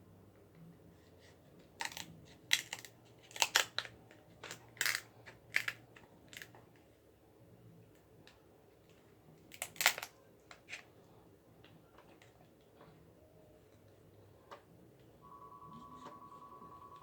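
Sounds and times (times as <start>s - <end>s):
crab shells cracked with scissors: 1.8s - 3.9s, 4.5s - 6.5s, 9.5s - 10.1s.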